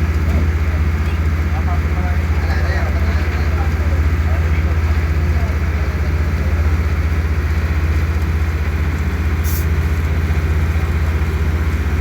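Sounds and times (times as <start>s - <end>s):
boat engine droning: 0.0s - 12.0s
brief hiss: 9.4s - 9.7s.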